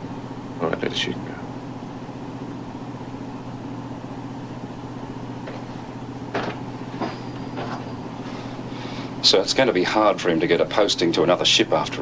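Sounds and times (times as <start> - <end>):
boat machinery drone: 0.0 - 12.0
short knocks: 6.3 - 8.0.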